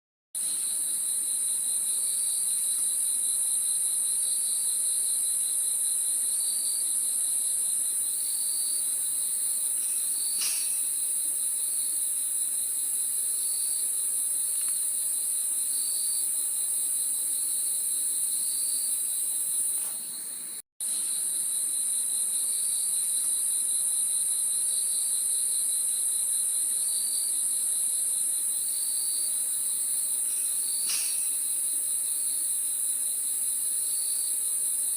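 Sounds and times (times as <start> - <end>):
crickets trilling: 0.4 - 34.9
pulsing cricket chirp: 0.4 - 34.9.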